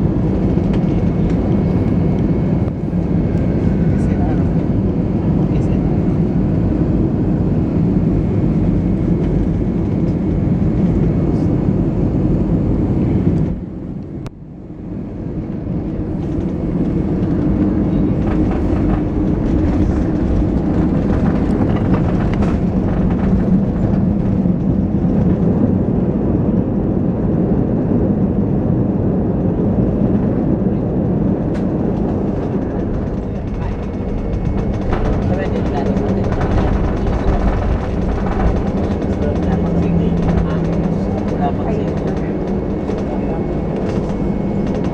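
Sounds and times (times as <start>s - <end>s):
aircraft cabin engine rumble: 0.0s - 44.9s
faint rattles: 31.5s - 44.9s.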